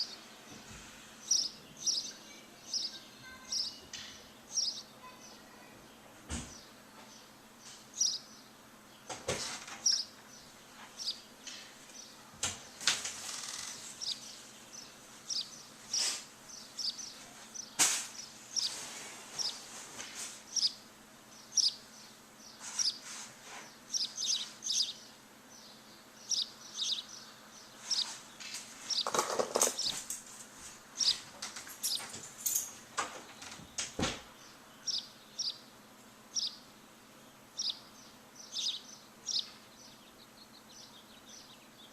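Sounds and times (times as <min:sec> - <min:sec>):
small birds chirping: 0:00.0 - 0:41.9
rustling: 0:17.1 - 0:20.5, 0:22.6 - 0:23.8.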